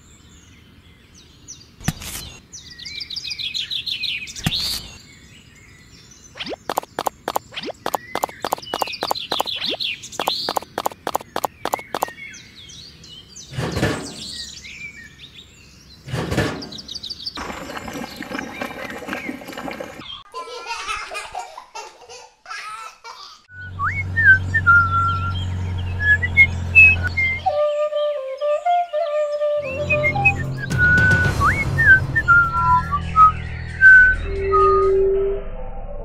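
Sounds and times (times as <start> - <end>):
birds chirping: 0.0 - 20.3, 23.2 - 31.1
wet cement pouring: 17.4 - 20.2.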